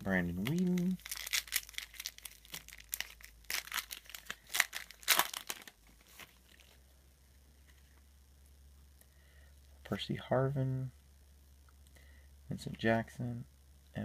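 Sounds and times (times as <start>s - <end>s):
card pack wrapper crinkling: 0.0s - 6.8s.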